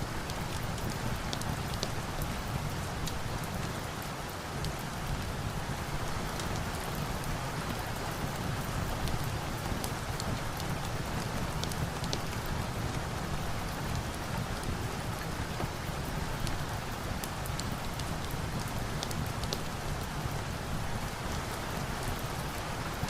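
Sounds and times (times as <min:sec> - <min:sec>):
rain hiss and patter: 0:00.0 - 0:23.0.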